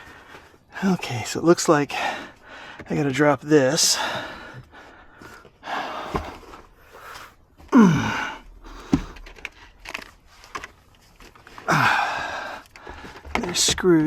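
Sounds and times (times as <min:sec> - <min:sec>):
man grunting: 0:07.7 - 0:08.4
plastic trim clicks and rustles: 0:08.8 - 0:11.7.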